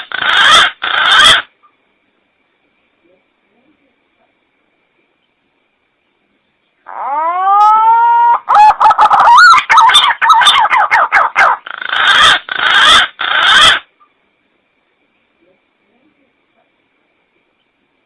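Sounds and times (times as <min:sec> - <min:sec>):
harsh grating bird notes: 0:00.0 - 0:01.5, 0:06.9 - 0:13.9.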